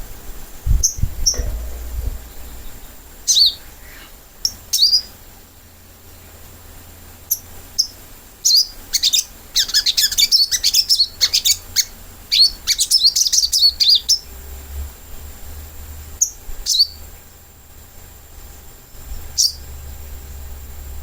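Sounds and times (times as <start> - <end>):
bird chirping: 0.7 - 5.8, 7.3 - 14.3, 19.3 - 19.7.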